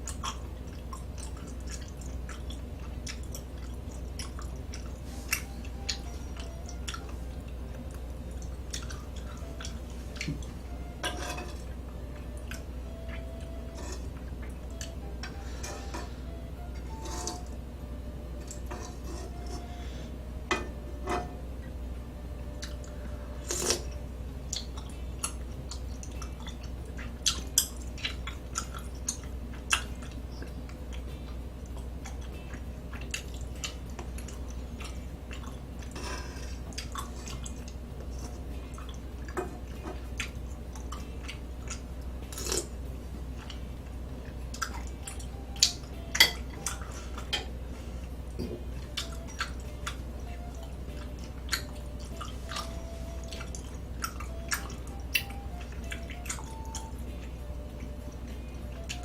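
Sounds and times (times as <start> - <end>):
person chewing: 0.0 - 17.4, 22.5 - 42.8, 43.4 - 59.0
steady low hum: 0.0 - 59.0
utensils tapping dishes: 11.0 - 11.7, 13.1 - 16.1, 16.8 - 17.5, 18.4 - 19.7, 20.5 - 21.4.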